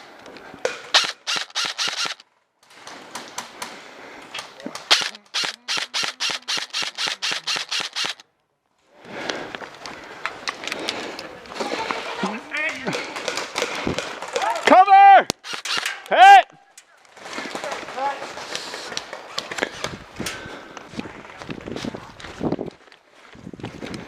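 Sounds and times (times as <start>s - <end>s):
airsoft rifle rapid shots: 0.9s - 2.2s, 4.9s - 8.2s, 15.4s - 16.0s.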